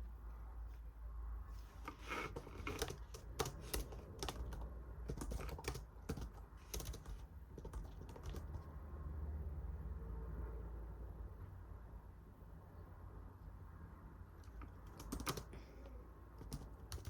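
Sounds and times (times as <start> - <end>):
typing on keyboard: 1.8 - 8.7, 14.4 - 17.0.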